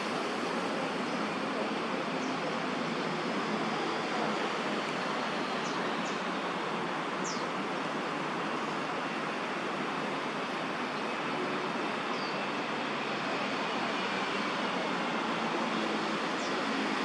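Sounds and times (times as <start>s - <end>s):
distant city traffic: 0.0s - 17.0s
small birds chirping: 5.4s - 6.4s, 7.2s - 7.6s, 12.0s - 12.5s.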